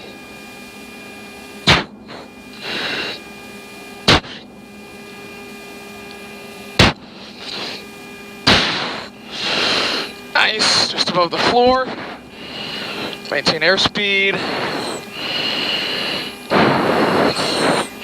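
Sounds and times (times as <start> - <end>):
jet cockpit hum: 0.0 - 18.0
pilot breathing through oxygen mask: 2.0 - 3.3, 4.1 - 4.5, 7.0 - 7.9, 8.5 - 11.0, 11.9 - 13.3, 14.3 - 18.0.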